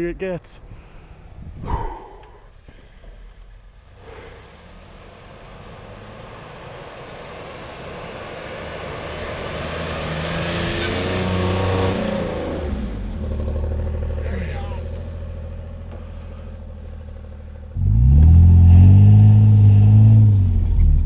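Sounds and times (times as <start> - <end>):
suv engine straining uphill: 0.0 - 21.0
tyres hissing through snow: 1.7 - 9.1, 18.9 - 21.0.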